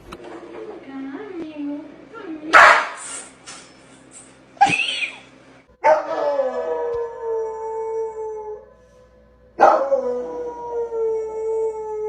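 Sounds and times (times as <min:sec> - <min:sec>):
dog howling: 0:05.8 - 0:08.7, 0:09.6 - 0:12.0.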